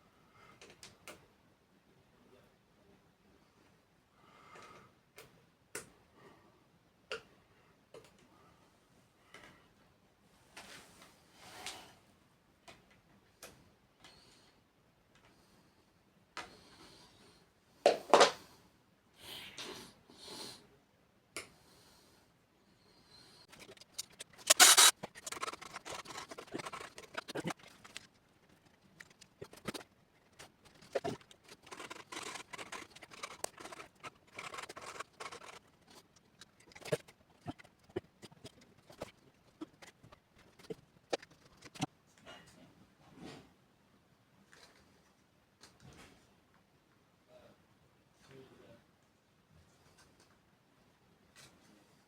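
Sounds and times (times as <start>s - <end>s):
scraping and rubbing small parts: 23.4s - 41.9s.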